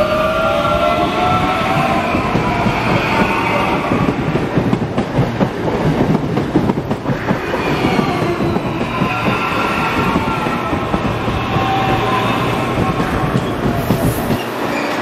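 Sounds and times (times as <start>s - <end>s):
train wheels clattering over rails: 0.0s - 15.0s
high wheel squeal: 7.2s - 15.0s.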